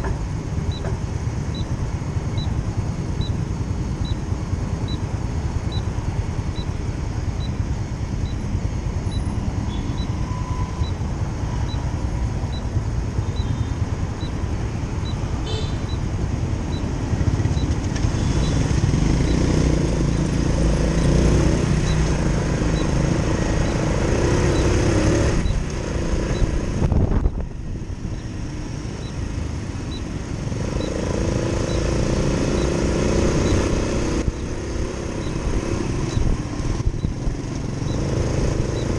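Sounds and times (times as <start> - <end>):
road rumble: 0.0 - 38.9
motorcycle engine running: 10.8 - 38.9.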